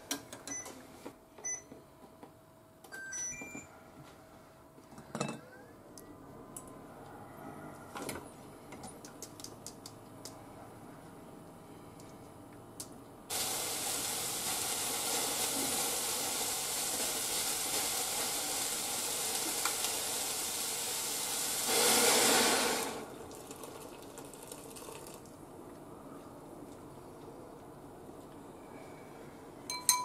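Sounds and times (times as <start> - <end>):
vegetables sizzling in a saucepan: 13.3 - 25.2.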